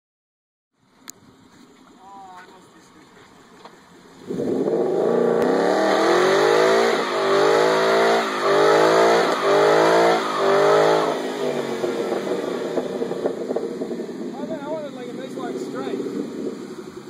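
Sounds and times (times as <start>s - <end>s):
car engine revving high: 4.1s - 17.0s.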